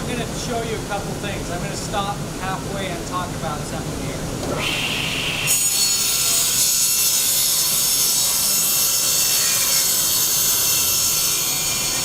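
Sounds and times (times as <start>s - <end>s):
table saw whine: 4.5s - 12.0s
wood being cut rasp: 5.5s - 12.0s.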